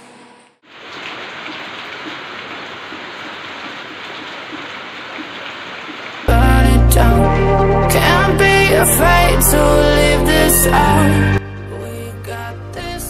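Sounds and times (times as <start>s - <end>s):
rain falling on foliage: 0.6s - 6.3s.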